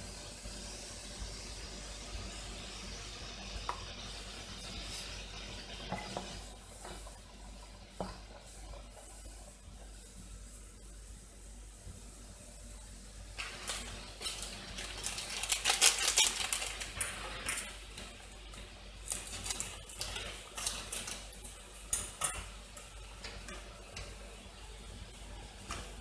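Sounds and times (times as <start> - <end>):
toast crunching: 13.4 - 17.7.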